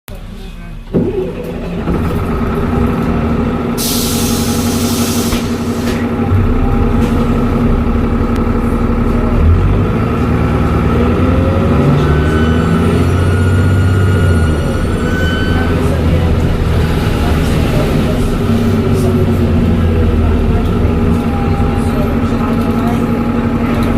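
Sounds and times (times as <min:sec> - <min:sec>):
diesel bus engine running: 0:00.1 - 0:23.9.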